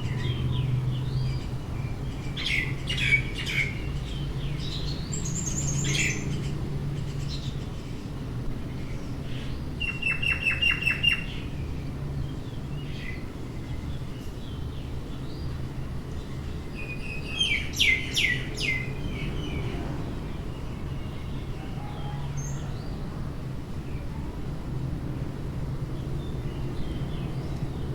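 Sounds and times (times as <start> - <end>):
small birds chirping: 0.0 - 21.6.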